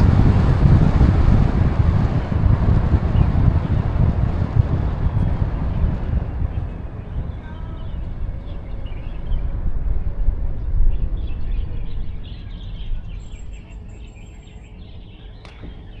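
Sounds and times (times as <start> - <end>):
low steady rumble: 0.0 - 14.8
small birds chirping: 5.2 - 9.6, 10.9 - 16.0.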